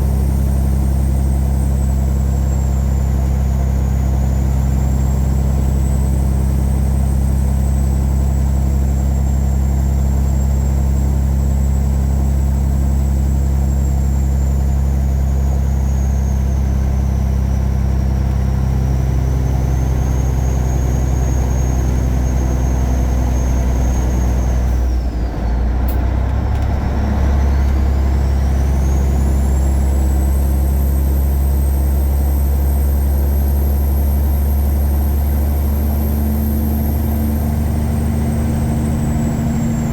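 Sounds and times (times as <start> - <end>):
diesel truck engine drone: 0.0 - 39.9.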